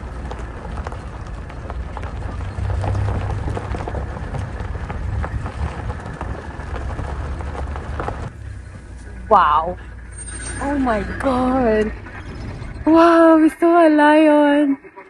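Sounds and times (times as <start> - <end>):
body rattling over bumps: 0.0 - 11.8
vehicle engine and road rumble: 0.0 - 13.6.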